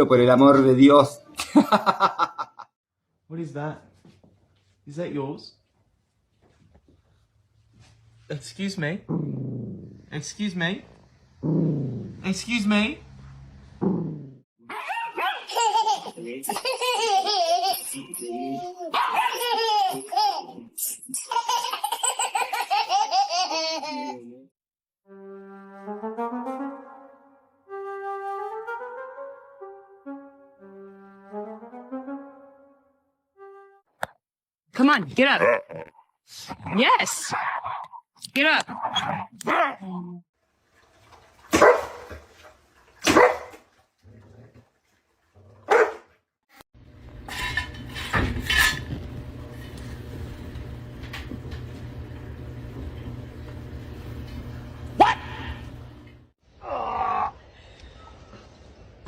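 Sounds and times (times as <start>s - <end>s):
music with brass notes: 25.1s - 33.8s
dog barking: 41.5s - 42.2s, 43.0s - 43.6s, 45.6s - 46.1s, 55.0s - 55.4s.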